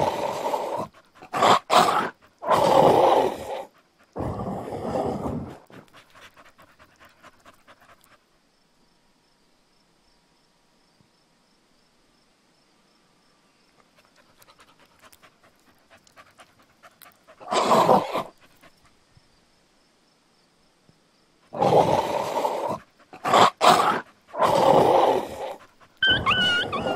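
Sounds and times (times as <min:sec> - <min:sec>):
harsh breathy dog noise: 0:00.0 - 0:08.4, 0:13.8 - 0:19.1, 0:21.4 - 0:26.9.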